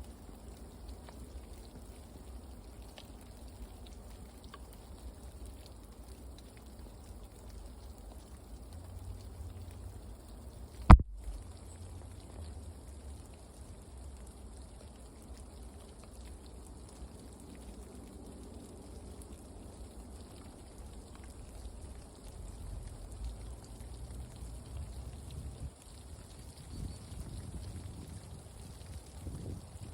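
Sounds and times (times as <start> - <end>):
soft ticks: 0.1 - 13.4.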